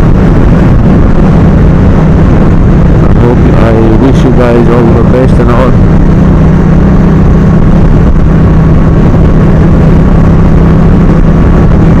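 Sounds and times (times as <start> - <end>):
motorcycle engine: 0.0 - 12.0
rush of riding noise: 0.0 - 12.0.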